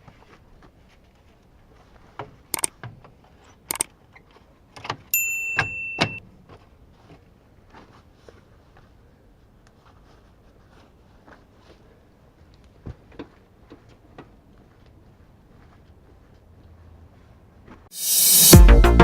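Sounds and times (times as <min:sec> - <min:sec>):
sharp clicks and knocks: 0:02.6 - 0:02.9
high-pitched electronic beep: 0:05.5 - 0:06.2, 0:18.0 - 0:19.0.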